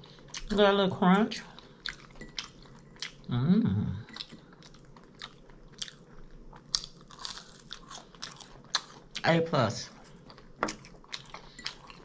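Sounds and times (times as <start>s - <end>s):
chewing crunchy food: 0.0s - 0.6s, 1.3s - 3.3s, 4.0s - 12.0s
person humming mm: 3.3s - 4.0s.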